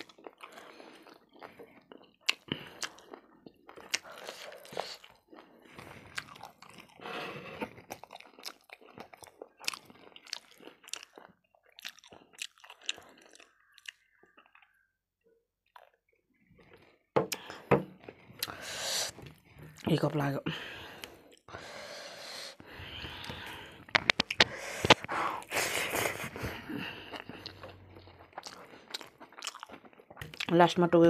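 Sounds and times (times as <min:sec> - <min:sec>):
chewing and crunching food: 0:00.0 - 0:31.0
wet mouth sounds: 0:02.1 - 0:07.0, 0:17.3 - 0:17.6, 0:18.4 - 0:19.9, 0:21.3 - 0:30.6.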